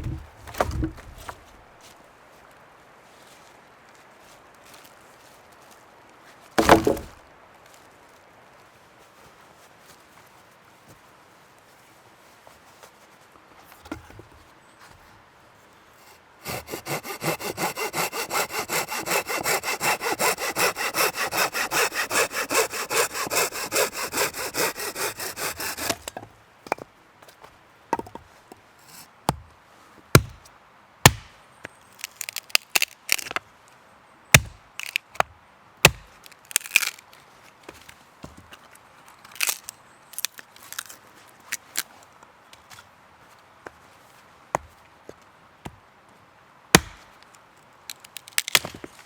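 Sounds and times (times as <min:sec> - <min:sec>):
wood knocking and snapping: 0:00.0 - 0:01.6, 0:06.6 - 0:07.2
hand saw cutting wood: 0:06.6 - 0:07.1, 0:16.0 - 0:26.2.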